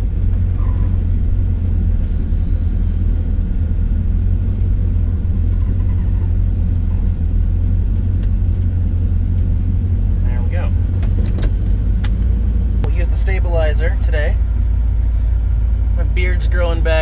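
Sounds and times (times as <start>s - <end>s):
van engine rumbling: 0.0s - 17.0s.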